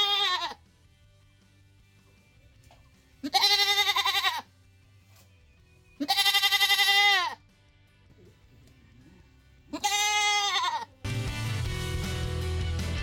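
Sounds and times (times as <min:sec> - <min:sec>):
goat bleating: 0:00.0 - 0:00.7, 0:03.2 - 0:04.6, 0:06.0 - 0:07.5, 0:09.6 - 0:11.1.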